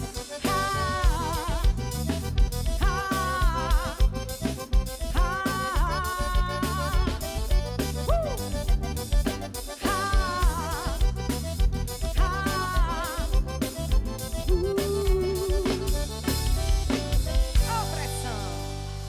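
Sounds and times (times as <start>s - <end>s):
bass and drums beat: 0.0s - 19.0s.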